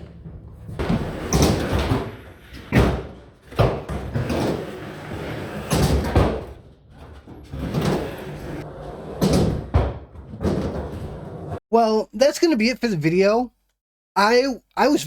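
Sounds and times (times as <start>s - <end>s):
skateboard rolling on ramp: 0.0s - 11.6s
skateboard slamming on ramp: 0.8s - 6.6s, 9.1s - 11.2s.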